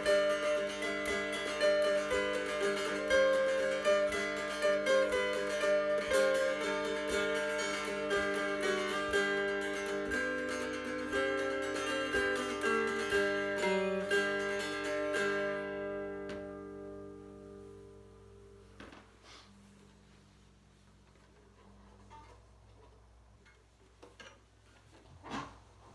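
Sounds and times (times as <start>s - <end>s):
mountain dulcimer plucked melody: 0.0s - 18.7s.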